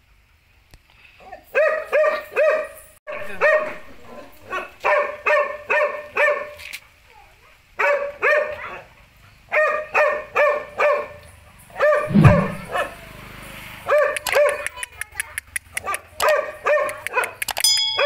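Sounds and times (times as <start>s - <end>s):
dog barking: 1.5s - 6.6s, 7.8s - 13.0s, 13.9s - 14.7s, 15.8s - 17.4s
low thump: 12.1s - 12.7s.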